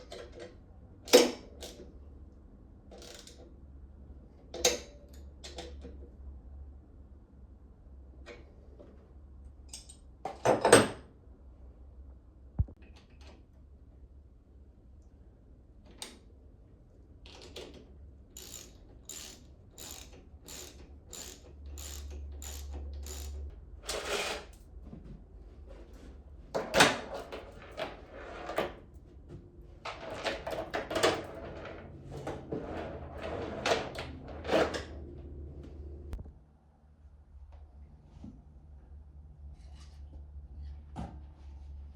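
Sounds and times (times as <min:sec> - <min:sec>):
ratchet clicks: 0:02.9 - 0:03.4, 0:18.4 - 0:23.5.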